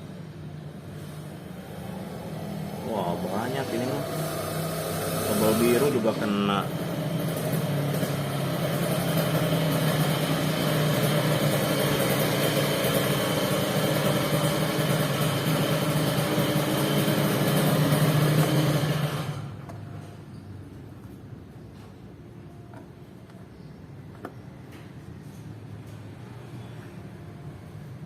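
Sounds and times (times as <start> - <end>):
engine idling: 0.7 - 19.8.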